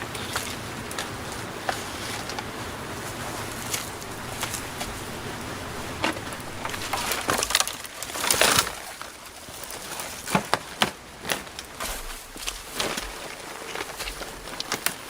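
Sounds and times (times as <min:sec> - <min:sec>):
rustling crunch: 0:01.0 - 0:07.6.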